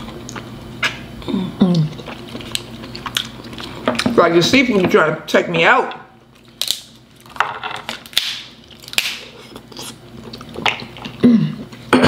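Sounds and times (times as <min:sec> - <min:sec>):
wet chewing: 0:01.7 - 0:04.2, 0:08.6 - 0:11.2
shells snapping apart: 0:06.4 - 0:09.3.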